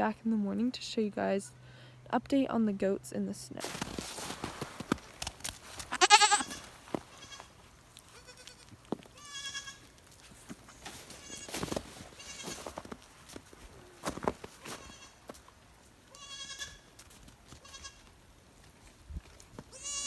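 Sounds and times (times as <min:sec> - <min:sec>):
goats bleating: 0:05.9 - 0:10.0, 0:10.6 - 0:12.7, 0:14.6 - 0:15.3, 0:16.1 - 0:16.9, 0:17.6 - 0:18.1, 0:19.7 - 0:20.0.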